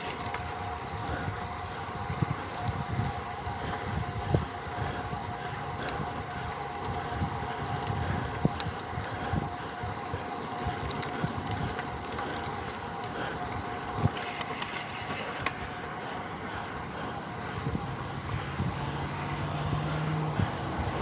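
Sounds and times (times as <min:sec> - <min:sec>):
wind rushing over microphone: 0:00.0 - 0:12.1, 0:17.2 - 0:21.0
constant hum: 0:00.0 - 0:21.0.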